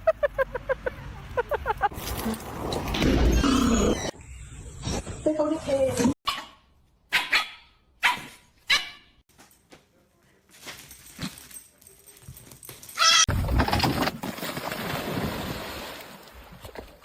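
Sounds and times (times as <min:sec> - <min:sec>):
dog barking: 0:06.3 - 0:09.1
dog yelping: 0:06.3 - 0:09.1.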